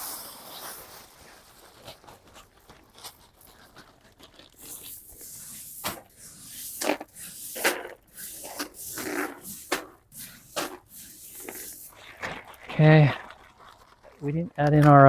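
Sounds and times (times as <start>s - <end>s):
gravel pouring into plastic bin: 0.0s - 15.0s
gravel scraping: 0.0s - 15.0s.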